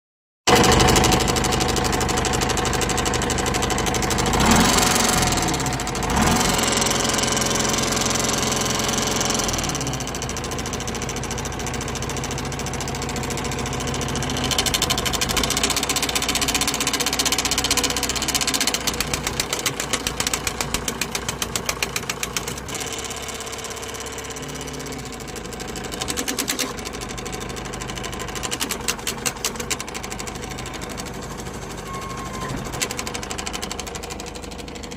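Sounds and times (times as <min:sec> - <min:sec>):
diesel engine running: 0:00.5 - 0:34.9
fast rhythmic knocking rattle: 0:10.2 - 0:31.9, 0:32.7 - 0:34.9.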